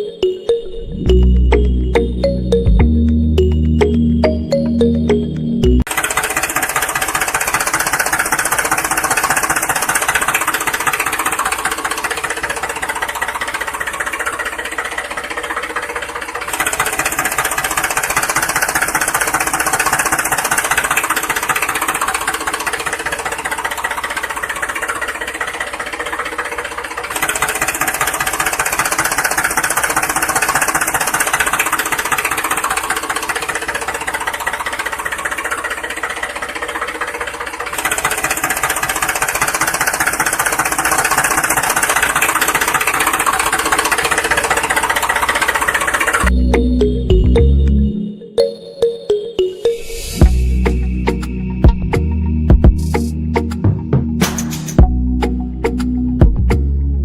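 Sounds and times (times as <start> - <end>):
engine knocking rattle: 5.9 - 46.3.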